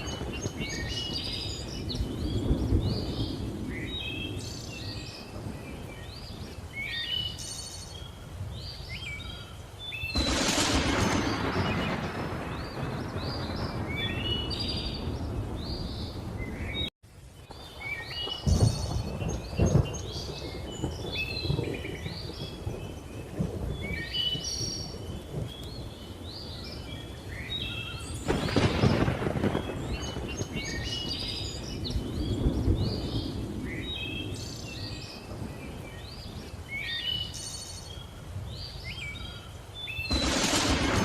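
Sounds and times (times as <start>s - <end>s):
loud thunder crack: 0.0s - 4.5s, 10.1s - 16.9s, 17.8s - 25.6s, 28.3s - 35.6s, 40.1s - 41.0s
thunder rumbling: 0.0s - 7.0s, 10.1s - 16.9s, 17.5s - 37.0s, 40.0s - 41.0s
birds chirping and whistling: 0.0s - 16.9s, 17.8s - 41.0s.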